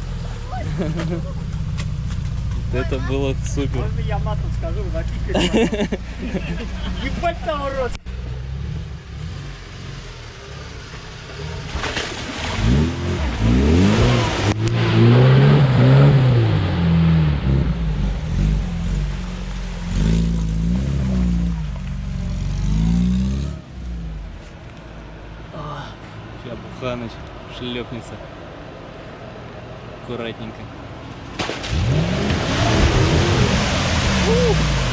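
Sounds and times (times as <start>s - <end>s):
off-road engine revving hard: 2.7s - 24.2s, 31.6s - 34.9s.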